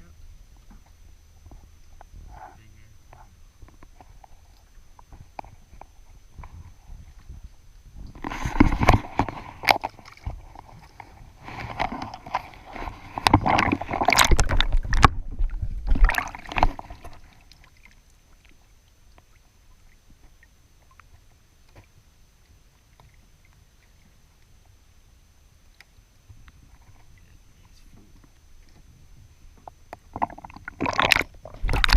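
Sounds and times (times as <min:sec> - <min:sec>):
faint hiss: 0:00.0 - 0:11.7, 0:16.9 - 0:30.1
water sloshing against kayak: 0:00.3 - 0:31.9.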